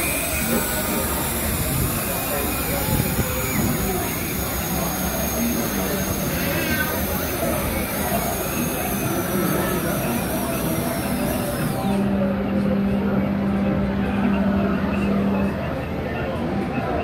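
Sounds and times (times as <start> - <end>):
steam train hiss: 0.0 - 12.0.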